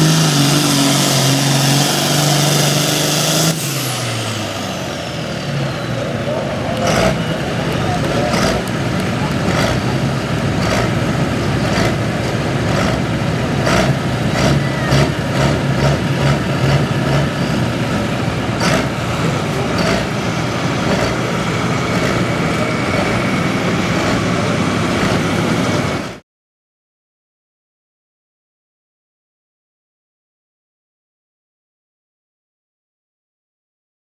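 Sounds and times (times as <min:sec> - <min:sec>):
tractor engine running: 0:00.0 - 0:26.2.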